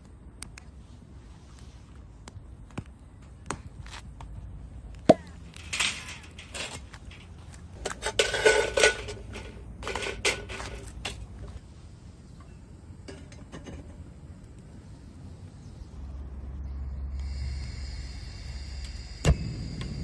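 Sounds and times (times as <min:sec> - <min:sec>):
cookware and utensils clattering: 0:05.7 - 0:11.2.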